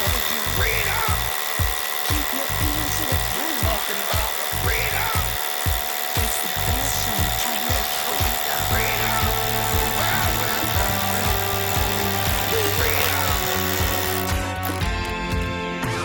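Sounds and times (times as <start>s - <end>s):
hammer drill boring into concrete: 0.0s - 15.4s
background music with steady beat: 0.0s - 16.0s.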